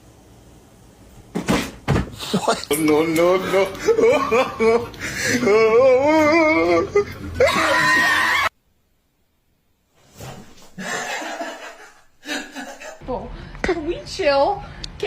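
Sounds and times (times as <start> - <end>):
person laughing hard: 2.2 - 8.5.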